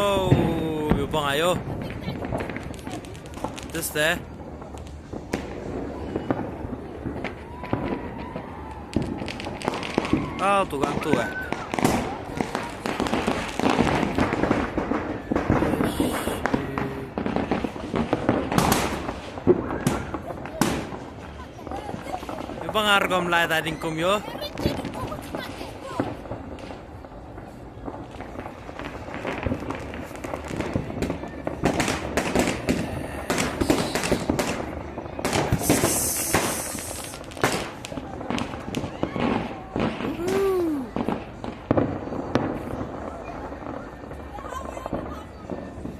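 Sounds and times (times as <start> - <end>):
fireworks cracking and popping: 0.0 - 45.9
high hiss: 35.5 - 37.3.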